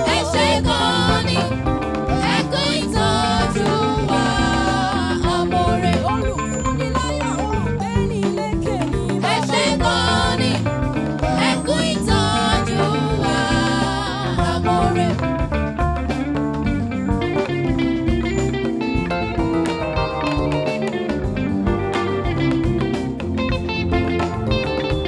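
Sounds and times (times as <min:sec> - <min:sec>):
person singing ornamented runs: 0:00.0 - 0:15.6
gospel band music: 0:00.0 - 0:25.0.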